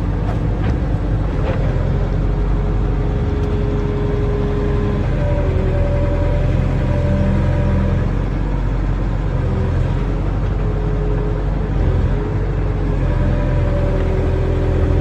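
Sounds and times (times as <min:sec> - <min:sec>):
hydraulic whine: 0:00.0 - 0:08.4
excavator diesel engine running: 0:00.0 - 0:15.0.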